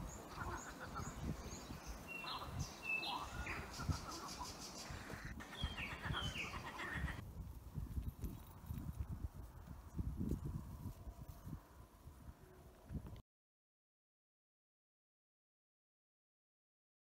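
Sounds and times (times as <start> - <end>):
small birds chirping and whistling: 0.0 - 7.2.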